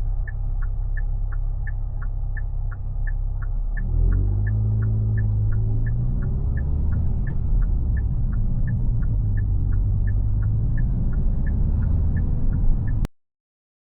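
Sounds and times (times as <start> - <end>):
car engine running at low revs: 0.0 - 13.1
light regular ticking: 0.0 - 13.1.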